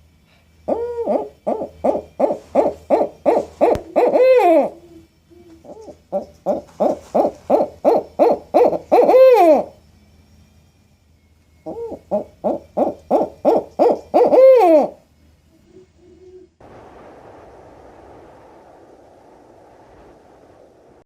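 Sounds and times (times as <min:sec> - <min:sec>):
owl hooting: 0:00.6 - 0:09.8, 0:11.6 - 0:16.6.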